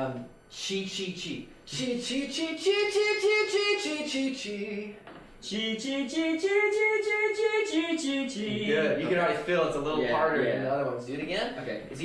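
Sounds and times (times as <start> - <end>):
person singing vocal exercise: 0.0 - 9.1.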